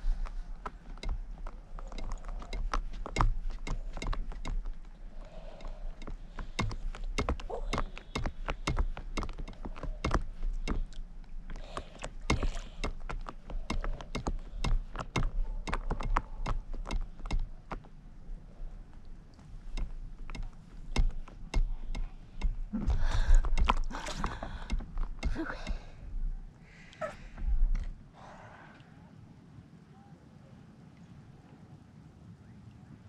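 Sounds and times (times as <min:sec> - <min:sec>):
water lapping against paddleboard: 0:00.0 - 0:17.9.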